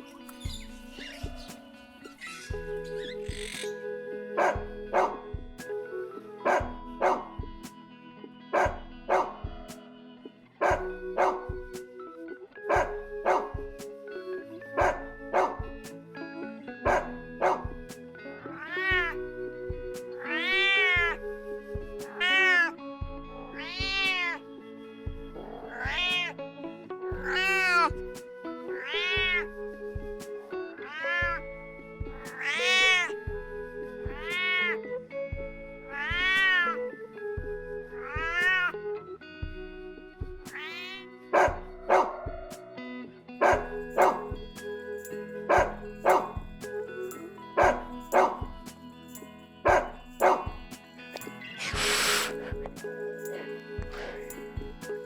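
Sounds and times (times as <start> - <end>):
music with a steady beat: 0.0 - 1.9, 2.5 - 14.1, 14.8 - 16.2, 16.8 - 26.4, 27.1 - 28.4, 29.0 - 30.5, 31.2 - 34.7, 35.3 - 36.7, 37.3 - 38.8, 39.4 - 42.8, 43.4 - 55.0
cat meowing: 18.6 - 19.2, 20.2 - 21.2, 22.1 - 22.7, 23.5 - 24.4, 25.6 - 26.3, 27.2 - 27.9, 28.8 - 29.4, 30.8 - 31.4, 32.3 - 33.2, 34.1 - 34.7, 35.9 - 36.8, 38.0 - 38.7, 40.6 - 41.1, 51.6 - 52.6.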